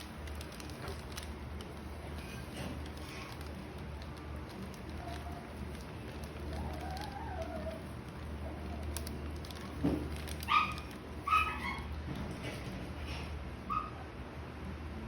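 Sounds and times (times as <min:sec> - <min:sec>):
animal calling: 0:06.4 - 0:08.8.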